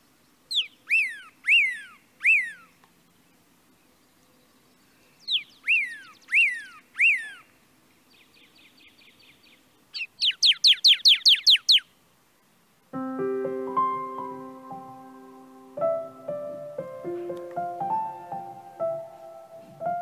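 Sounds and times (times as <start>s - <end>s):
songbird whistling calls: 0.5s - 2.8s, 4.9s - 7.5s, 8.1s - 11.9s
soft piano music: 12.9s - 20.0s.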